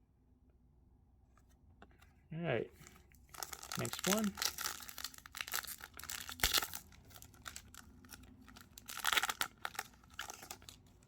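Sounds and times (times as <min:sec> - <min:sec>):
plastic wrapper tearing and crinkling: 0:02.9 - 0:11.0.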